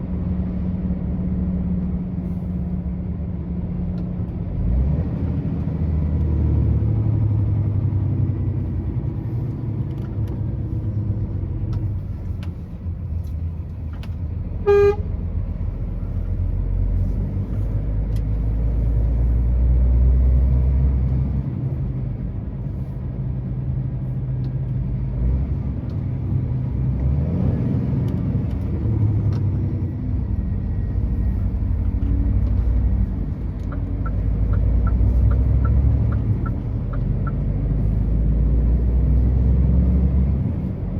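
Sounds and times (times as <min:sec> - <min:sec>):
truck engine droning: 0:00.0 - 0:40.9
truck horn toot: 0:14.6 - 0:15.2.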